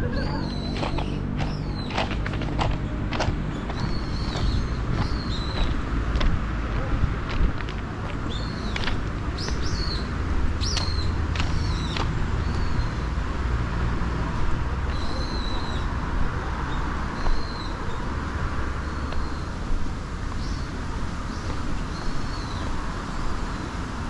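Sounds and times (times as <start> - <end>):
birds chirping: 0.0 - 13.4
steady low rumble: 0.0 - 17.4.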